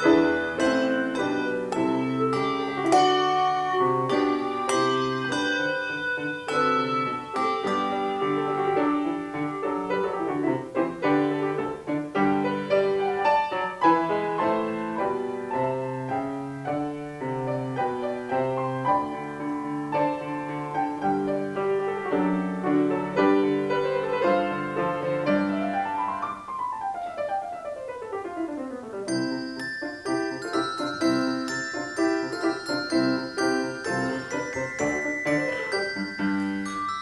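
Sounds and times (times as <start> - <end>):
handbells ringing: 0.0 - 9.5, 29.1 - 37.0
piano accompaniment: 0.0 - 37.0.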